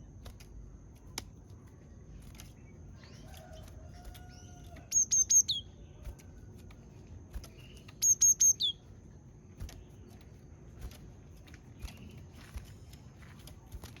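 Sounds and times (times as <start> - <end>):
soft bird call: 2.5 - 6.5, 7.4 - 8.9.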